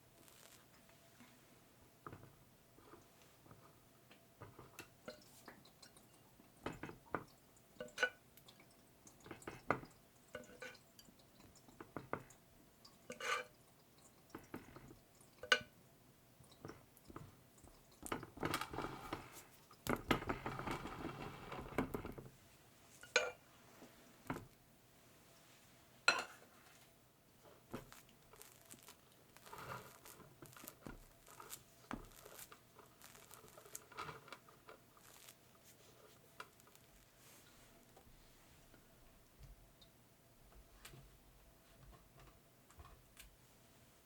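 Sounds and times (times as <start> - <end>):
rustling and scraping: 18.4 - 24.5, 25.4 - 38.8.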